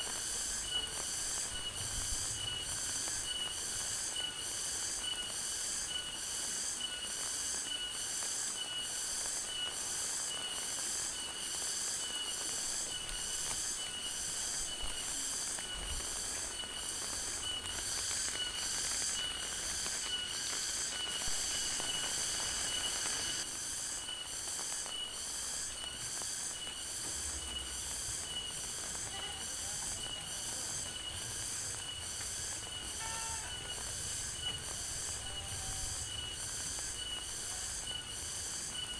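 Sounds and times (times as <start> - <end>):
high-pitched pulsing insect calls: 0.0 - 38.9
rain hiss: 0.0 - 38.9
fast insect chirping: 10.8 - 38.9.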